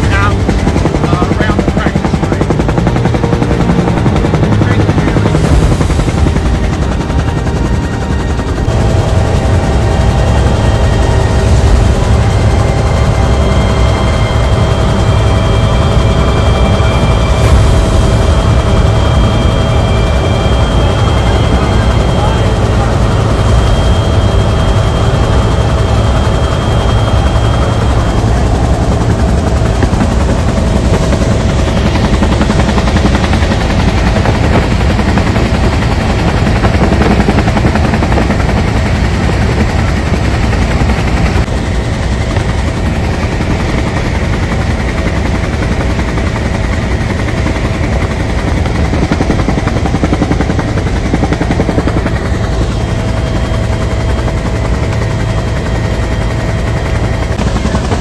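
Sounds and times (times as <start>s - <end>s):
helicopter rotor chopping: 0.0s - 58.0s
helicopter turbine tone: 0.0s - 58.0s.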